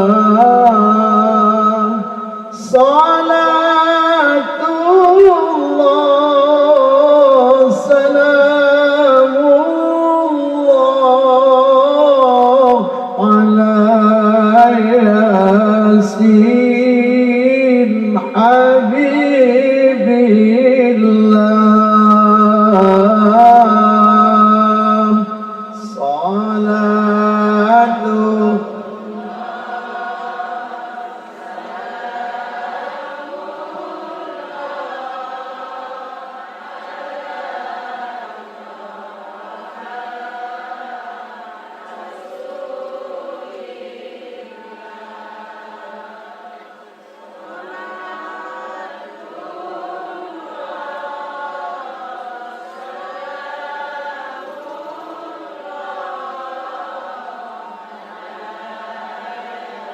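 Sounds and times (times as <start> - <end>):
group of voices chanting: 29.0 - 59.9.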